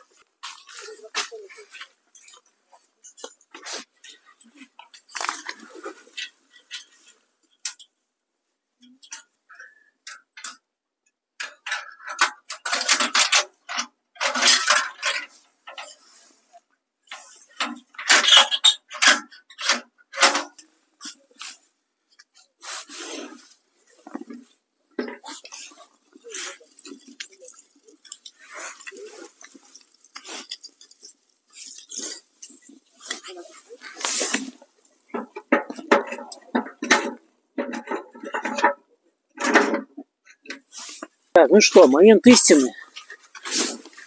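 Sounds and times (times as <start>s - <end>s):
clattering and scraping handling: 0.0s - 7.8s, 11.4s - 16.5s, 17.1s - 44.0s.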